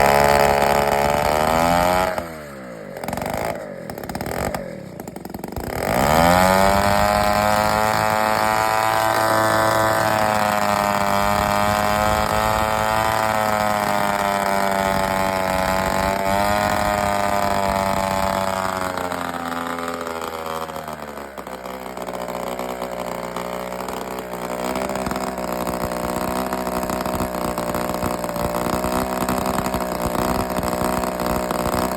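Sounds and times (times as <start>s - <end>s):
small engine revving: 0.0s - 31.9s.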